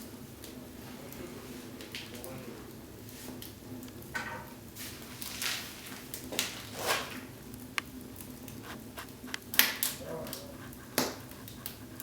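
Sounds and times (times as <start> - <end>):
firewood popping and crackling: 1.8 - 12.0
steady low hum: 7.7 - 12.0.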